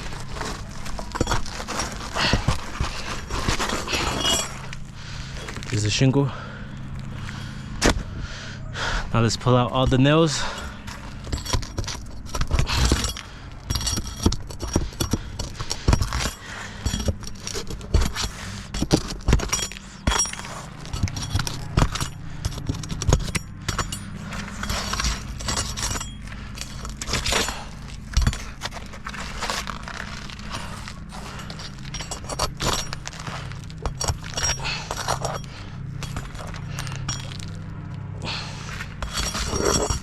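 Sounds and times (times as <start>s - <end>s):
metal tool prying roofing nails: 9.7s - 28.8s, 31.2s - 37.4s, 39.0s - 40.0s.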